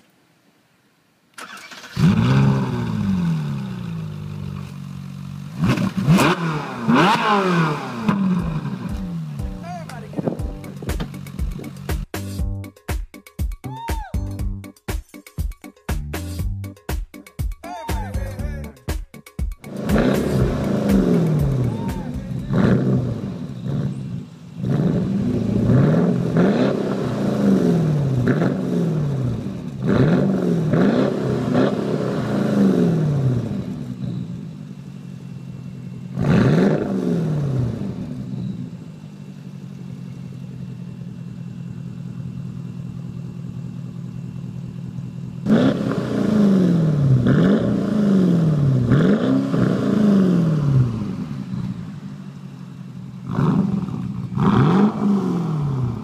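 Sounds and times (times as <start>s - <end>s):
car engine revving in blips: 1.4s - 12.2s, 19.6s - 39.1s, 45.3s - 56.0s.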